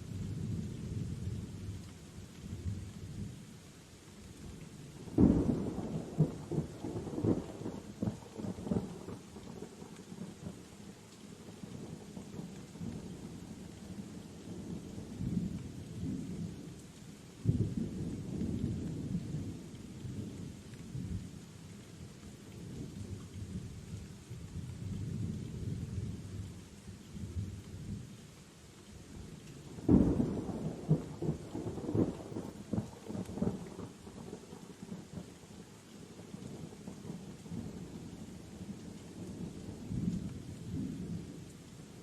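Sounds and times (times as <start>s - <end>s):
rain hiss: 0.0s - 42.0s
rolling thunder: 29.8s - 34.4s.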